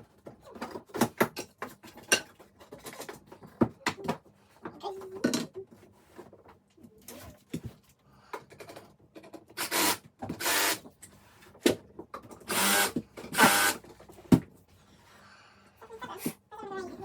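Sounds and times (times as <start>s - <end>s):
cordless drill driving screws: 9.6s - 10.8s, 12.5s - 13.8s.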